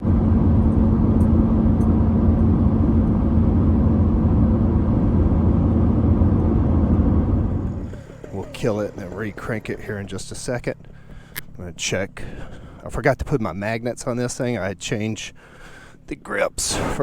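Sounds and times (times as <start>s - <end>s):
two-stroke engine idling: 7.4s - 10.4s.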